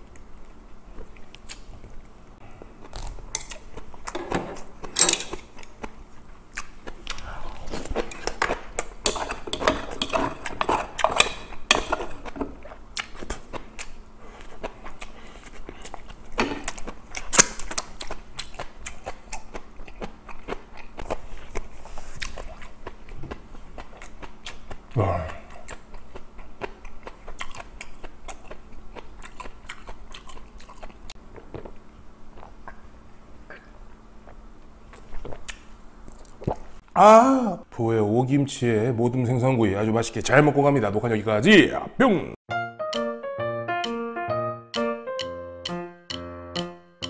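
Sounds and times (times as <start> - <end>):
chewing and crunching: 0.0 - 32.9
chopsticks clicking on dishes: 8.4 - 12.4.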